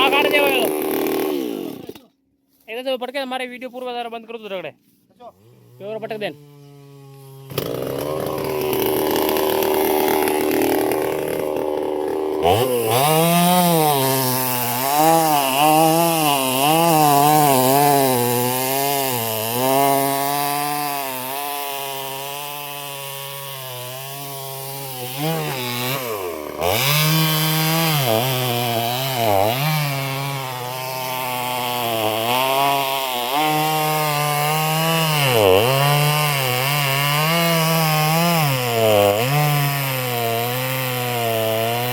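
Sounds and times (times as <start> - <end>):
chainsaw cutting into wood: 0.0 - 2.2, 5.3 - 41.9.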